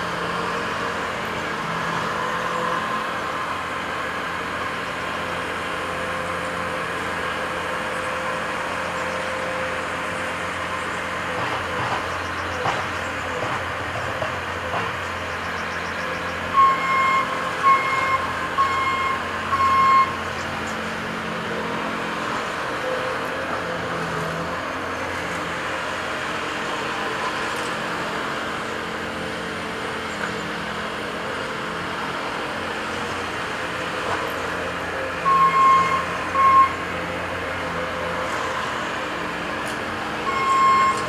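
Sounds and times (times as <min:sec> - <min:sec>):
diesel machinery running: 0:00.0 - 0:41.0
reversing alarm beeping: 0:15.4 - 0:20.2, 0:35.2 - 0:36.8, 0:40.2 - 0:41.0.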